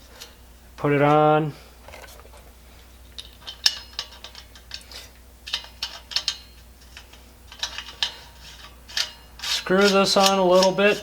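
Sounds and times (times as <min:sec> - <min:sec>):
metal parts clicking and knocking: 0:05.5 - 0:09.2.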